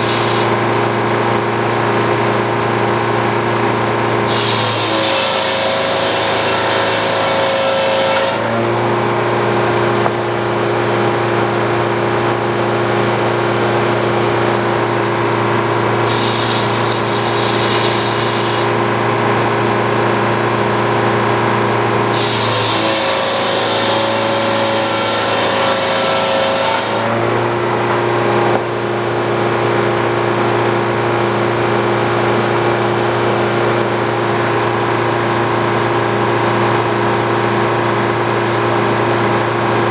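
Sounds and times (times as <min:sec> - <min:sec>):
circular saw cutting log: 0:00.0 - 0:29.4
sawmill engine running: 0:00.0 - 0:39.9.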